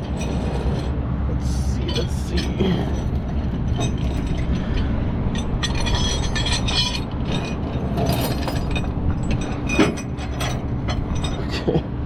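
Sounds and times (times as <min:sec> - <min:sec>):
tow chains clinking and rattling: 0:00.0 - 0:12.0
tow truck engine running: 0:00.0 - 0:12.0.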